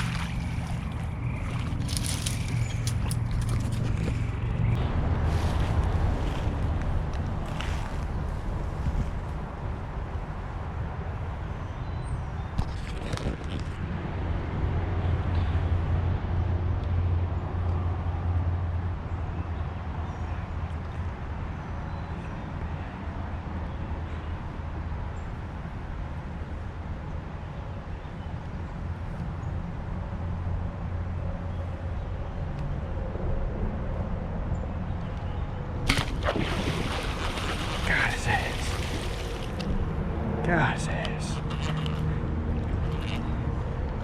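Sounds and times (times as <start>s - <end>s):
boat motor humming: 0.0s - 5.1s, 35.9s - 44.0s.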